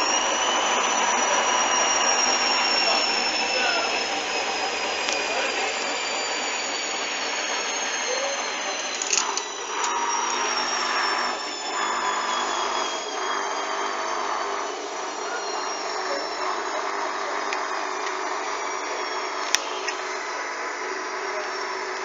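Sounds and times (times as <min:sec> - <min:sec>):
washing machine spinning: 0:00.0 - 0:22.0
clicks: 0:08.9 - 0:10.5.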